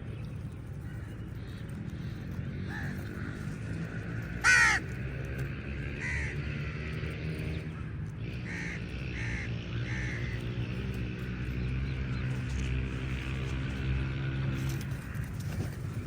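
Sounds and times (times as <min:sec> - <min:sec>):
crows cawing: 0:02.6 - 0:03.8, 0:04.4 - 0:05.0, 0:05.9 - 0:06.7, 0:08.4 - 0:10.7.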